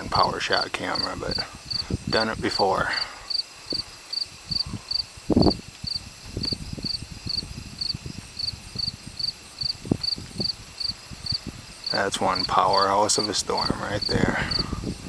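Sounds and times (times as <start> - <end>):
crickets chirping: 0.0 - 15.0
low thumps on microphone: 4.5 - 9.0.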